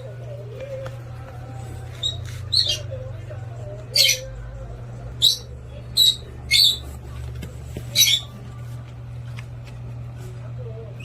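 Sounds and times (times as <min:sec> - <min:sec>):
parrot squawking: 0:02.0 - 0:02.9, 0:03.9 - 0:04.3, 0:05.2 - 0:06.9, 0:07.9 - 0:08.3.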